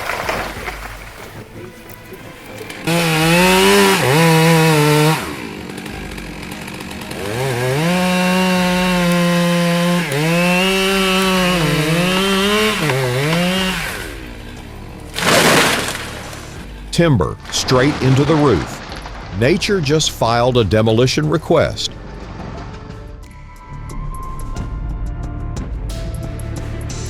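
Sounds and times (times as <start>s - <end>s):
chainsaw engine at high revs: 2.7s - 16.7s.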